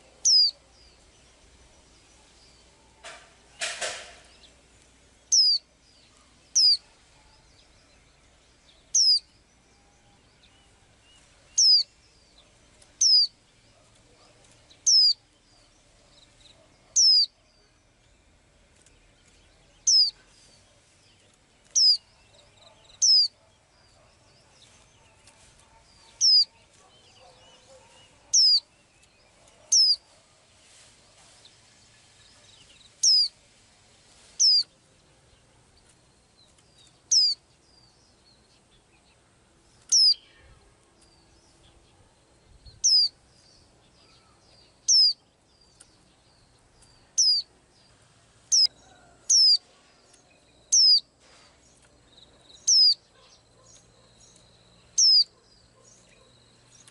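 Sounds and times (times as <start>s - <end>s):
small bird whistling calls: 0.2s - 0.6s, 5.3s - 5.7s, 6.6s - 6.8s, 8.9s - 9.3s, 11.5s - 11.9s, 13.0s - 13.3s, 14.9s - 15.2s, 16.9s - 17.3s, 19.8s - 20.2s, 21.8s - 22.1s, 22.9s - 23.4s, 26.0s - 26.6s, 27.4s - 28.6s, 29.7s - 30.0s, 33.0s - 33.3s, 34.4s - 34.7s, 37.1s - 37.4s, 39.9s - 40.4s, 42.8s - 43.2s, 44.8s - 45.2s, 47.2s - 47.5s, 48.5s - 48.7s, 49.3s - 49.6s, 50.7s - 51.1s, 52.6s - 53.0s, 54.9s - 55.3s
brief knock: 3.0s - 4.3s.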